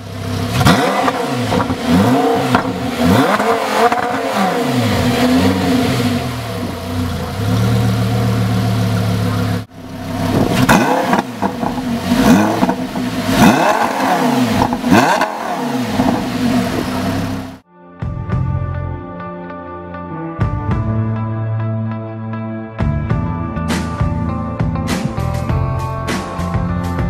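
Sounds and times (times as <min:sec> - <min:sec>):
car engine revving: 0:00.0 - 0:17.6.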